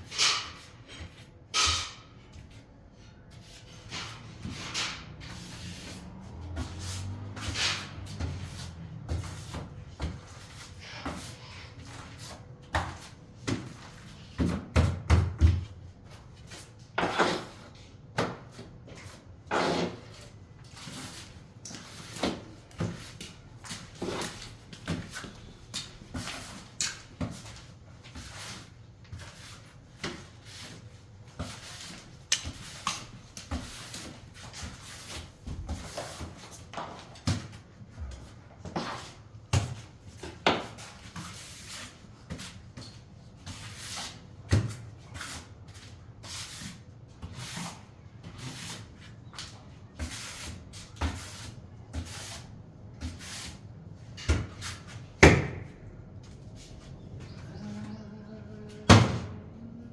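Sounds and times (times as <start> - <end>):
knocks and scrapes on tile: 17.0 - 17.7, 19.5 - 20.3.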